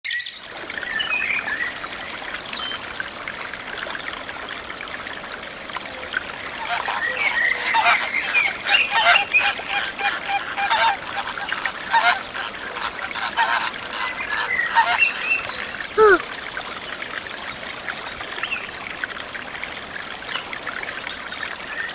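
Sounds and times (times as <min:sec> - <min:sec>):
flock of water birds calling: 0:05.3 - 0:18.2.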